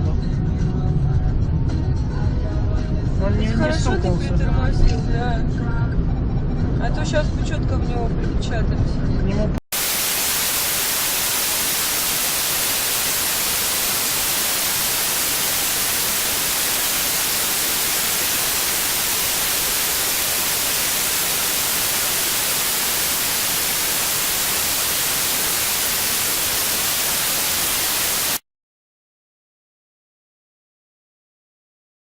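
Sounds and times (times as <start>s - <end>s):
static hiss: 9.7s - 28.4s.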